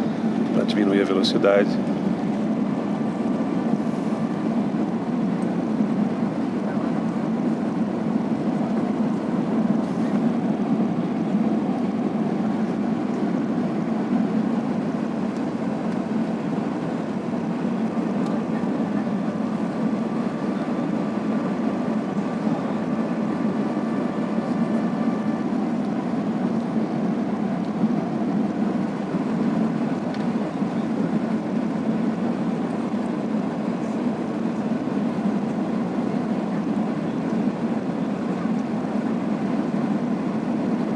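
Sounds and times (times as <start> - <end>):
airflow and engine noise in cabin: 0.0 - 40.9
faint steady whine: 0.0 - 40.9.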